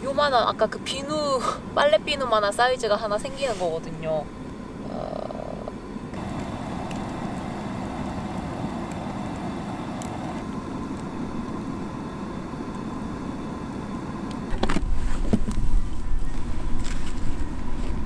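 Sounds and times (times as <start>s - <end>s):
fire crackling: 1.8s - 14.6s
flames rushing: 6.0s - 18.0s.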